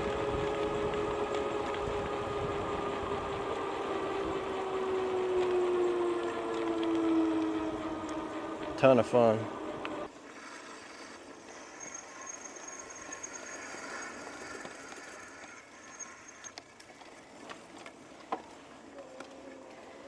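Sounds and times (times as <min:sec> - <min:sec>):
electric bike motor whine: 0:00.0 - 0:10.1, 0:10.7 - 0:16.5.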